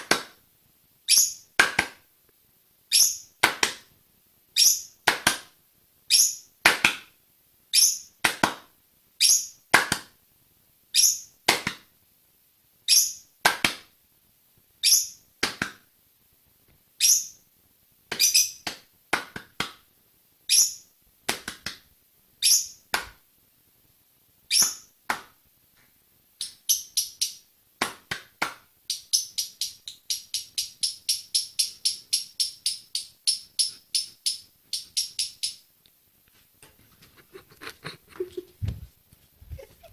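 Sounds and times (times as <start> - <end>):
parrot high chirps: 1.1 - 1.5, 2.9 - 3.3, 4.6 - 5.0, 6.1 - 6.5, 7.7 - 8.1, 9.2 - 9.6, 10.9 - 11.3, 12.9 - 13.3, 14.8 - 15.2, 17.0 - 17.4, 20.5 - 20.9, 22.4 - 22.8, 24.5 - 24.9, 26.4 - 27.4.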